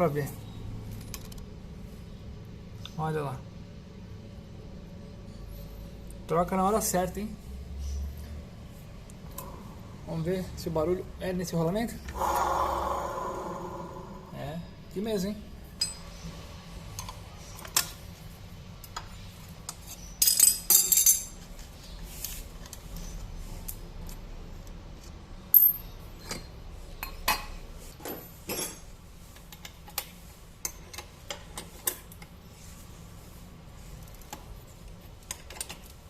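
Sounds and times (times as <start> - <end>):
metal tools clinking and knocking: 20.2 - 21.4, 25.6 - 28.9.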